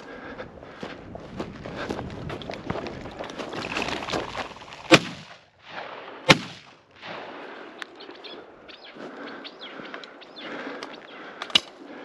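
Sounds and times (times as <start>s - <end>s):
footsteps through brush: 0.0s - 5.7s
shotgun shots: 4.9s - 7.2s.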